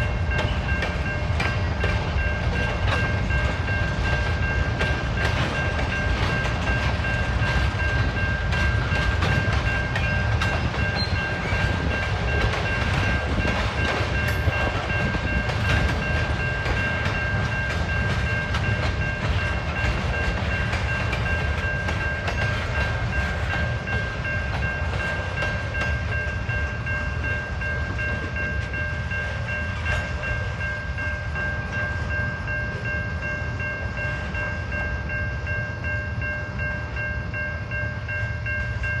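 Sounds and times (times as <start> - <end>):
high-pitched ringing tone: 0.0 - 39.0
train rumbling past: 0.0 - 39.0
wheels clicking over rail joints: 0.3 - 26.7.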